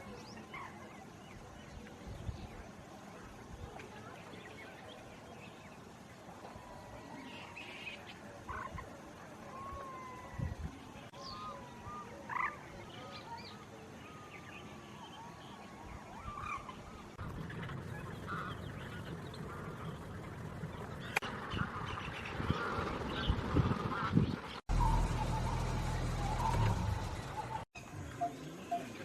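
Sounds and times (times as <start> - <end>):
honking bird calls: 16.2 - 23.3
whistled bird notes: 24.7 - 29.0.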